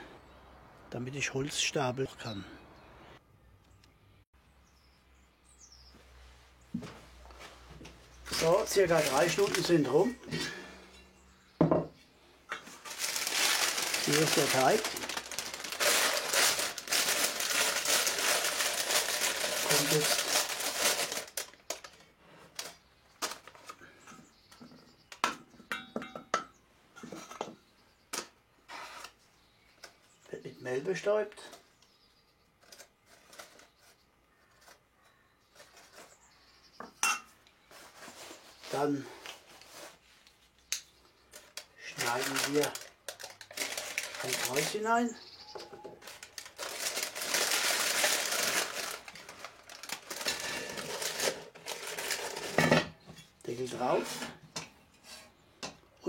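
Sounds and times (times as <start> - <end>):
baking paper crinkling: 8.3 - 10.6, 12.6 - 23.8, 41.3 - 45.2, 46.0 - 52.7
kitchenware knocking and clinking: 11.6 - 12.0, 25.2 - 26.6.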